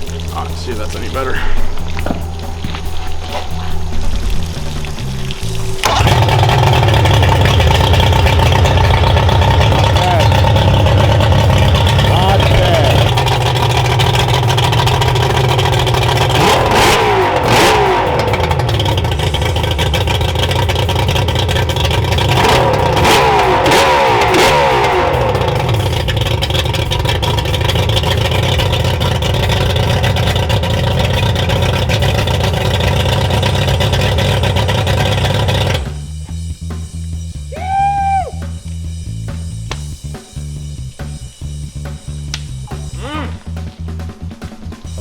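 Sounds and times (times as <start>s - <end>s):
outboard motor revving: 3.4s - 37.2s.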